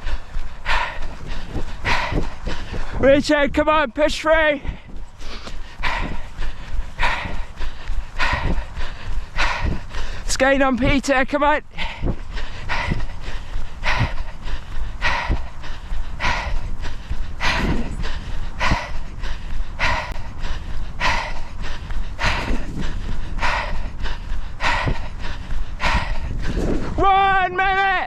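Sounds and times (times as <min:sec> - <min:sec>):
person panting heavily: 0:00.0 - 0:27.6
low rumble: 0:11.8 - 0:27.0.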